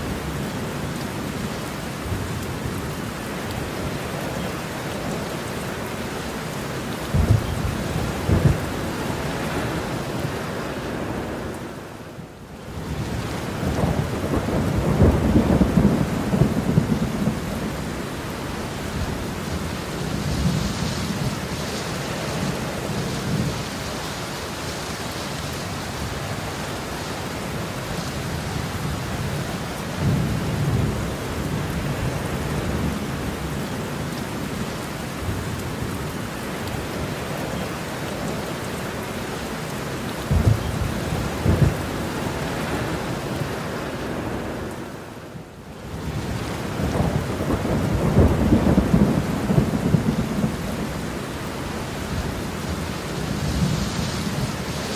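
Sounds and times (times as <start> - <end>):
heavy rain falling: 0.0 - 54.9
rolling thunder: 7.1 - 9.8, 13.0 - 18.0, 40.2 - 43.6, 46.0 - 51.2.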